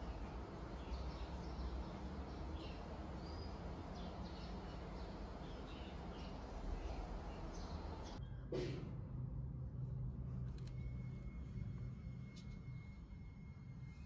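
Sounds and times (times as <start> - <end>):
small birds chirping: 0.0 - 8.2
low outdoor rumble: 0.0 - 14.0.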